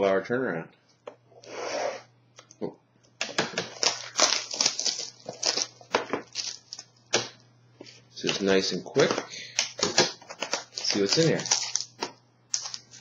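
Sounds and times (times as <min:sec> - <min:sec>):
plastic crinkling crackles: 0:03.6 - 0:07.1, 0:07.9 - 0:13.0
plastic wrap ripping: 0:03.6 - 0:07.2, 0:08.2 - 0:13.0.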